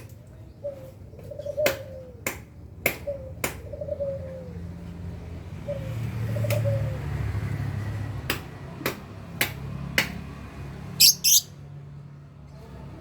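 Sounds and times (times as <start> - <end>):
lovebirds chirping shrilly: 11.0 - 11.5.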